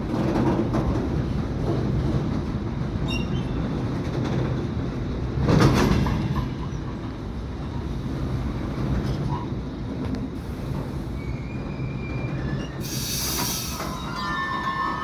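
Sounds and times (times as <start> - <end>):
train wagons rumbling on rails: 0.0 - 15.0
wheel squeals: 11.2 - 15.0
loud hiss: 12.8 - 14.5.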